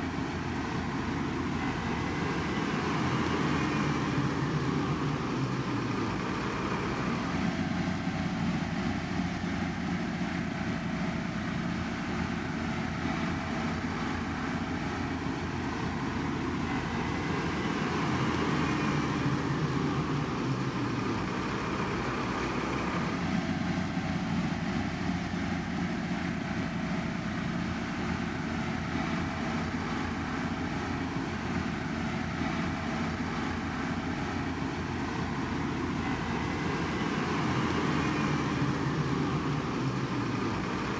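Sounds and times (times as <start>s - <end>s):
heavy construction machinery drone: 0.0s - 40.9s.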